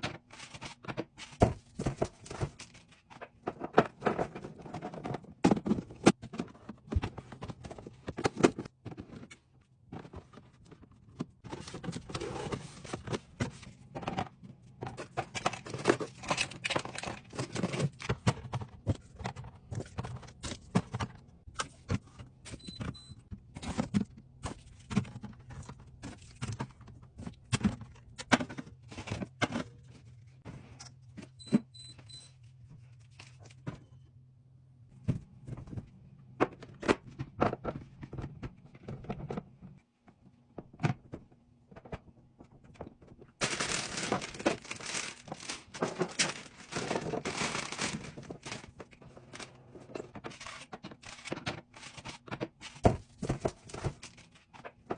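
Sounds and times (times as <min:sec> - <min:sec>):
packaging rustling: 0:43.4 - 0:49.5.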